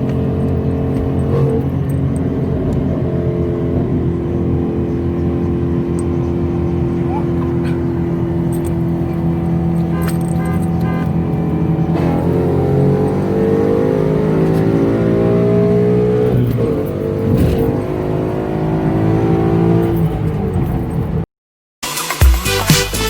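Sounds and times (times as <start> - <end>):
car engine accelerating: 0.0 - 21.2.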